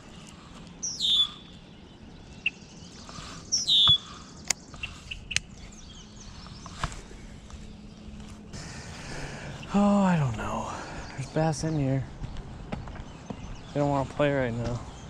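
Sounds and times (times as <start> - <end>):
short bird chirps: 0.8 - 1.6, 2.4 - 5.5
songbird call with buzzy trill: 0.8 - 1.6, 3.5 - 4.2
sharp clicks: 5.3 - 5.5.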